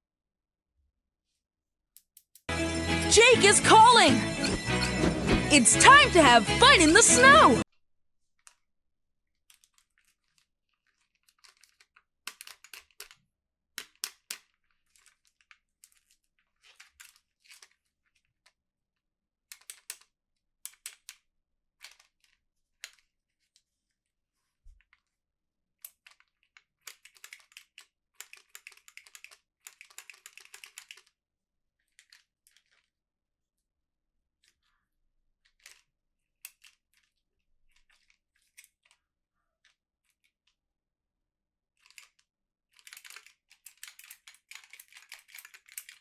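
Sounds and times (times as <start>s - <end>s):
plastic packaging crinkling: 9.6s - 12.0s.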